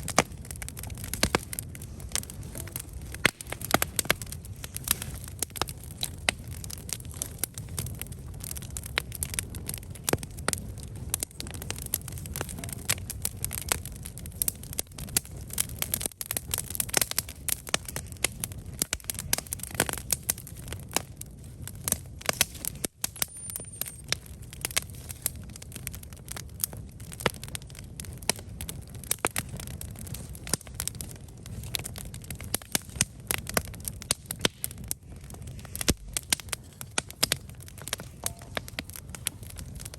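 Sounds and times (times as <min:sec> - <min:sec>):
campfire crackling and popping: 0:00.0 - 0:39.9
fire low rumble: 0:00.0 - 0:39.9.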